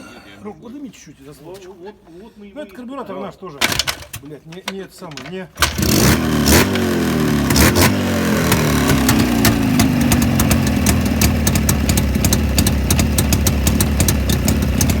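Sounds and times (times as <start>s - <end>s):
motorcycle engine idling: 5.6s - 15.0s.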